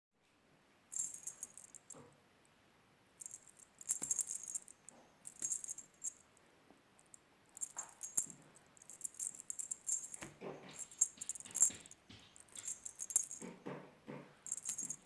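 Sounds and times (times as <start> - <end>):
small rattle shaken: 0.9 - 2.0, 3.2 - 6.3, 7.0 - 13.5, 14.5 - 15.0.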